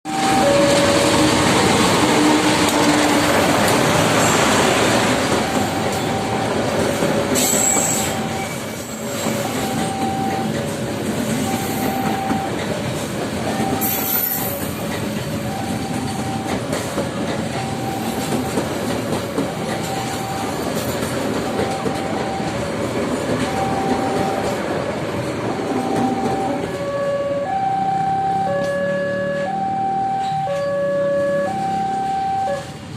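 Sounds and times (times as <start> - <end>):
train passing on tracks: 0.1 - 32.9
two-note signal: 25.7 - 32.7.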